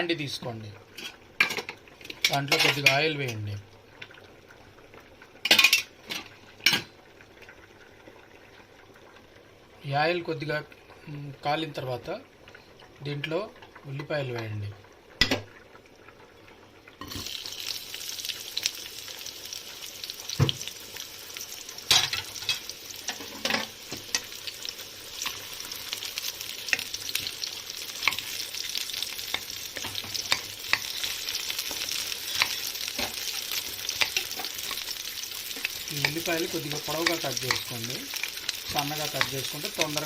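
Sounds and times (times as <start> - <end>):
onions sizzling in hot oil: 0.0 - 12.3, 13.0 - 40.0
spoon stirring against pan: 21.9 - 40.0.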